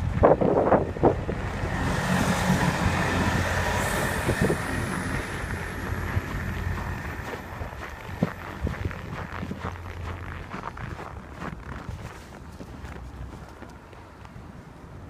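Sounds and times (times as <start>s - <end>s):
vehicle driving past: 0.3s - 11.3s
thin high whine: 1.6s - 8.7s.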